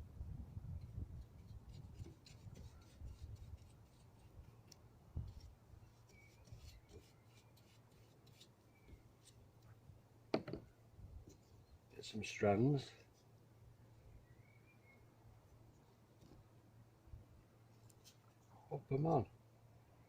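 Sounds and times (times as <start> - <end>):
faint scratching: 0.9 - 9.8.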